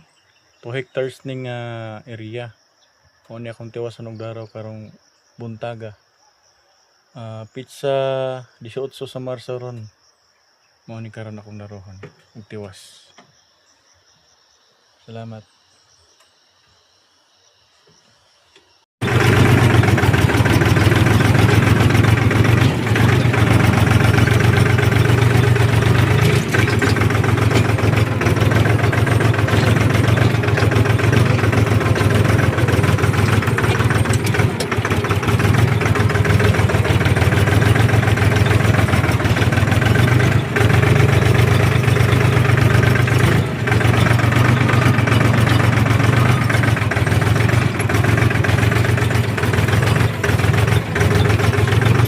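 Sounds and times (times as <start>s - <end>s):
tractor engine running: 19.0s - 52.0s.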